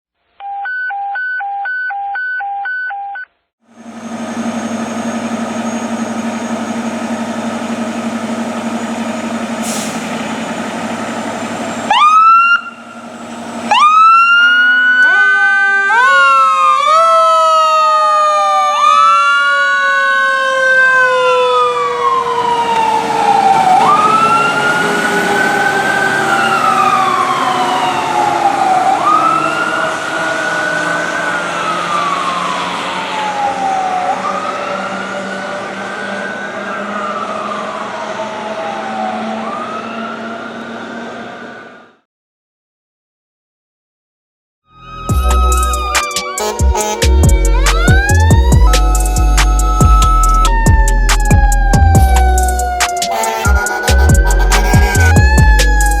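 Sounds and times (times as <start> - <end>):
diesel engine running: 3.7 - 15.0, 21.0 - 41.6, 44.9 - 56.0
sirens wailing: 3.7 - 42.0, 44.7 - 56.0
pulsed beeping tone: 44.8 - 56.0.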